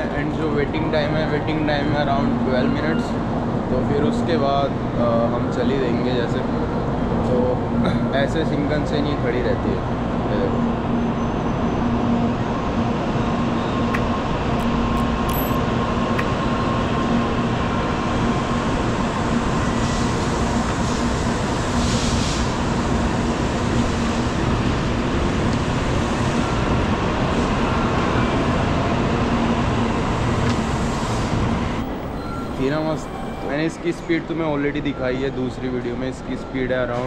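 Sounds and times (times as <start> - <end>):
train humming and rumbling: 0.0 - 37.0
low steady tone: 15.0 - 15.6.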